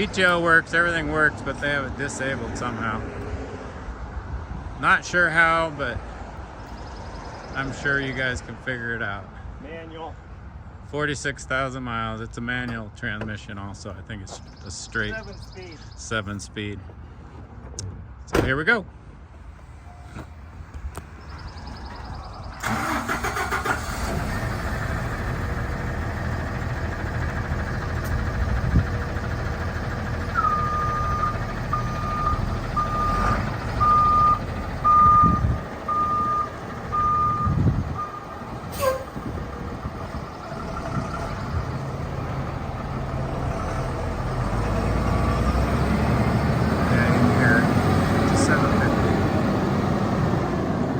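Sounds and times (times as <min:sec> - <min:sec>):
diesel engine starting and idling: 0:21.5 - 0:50.9.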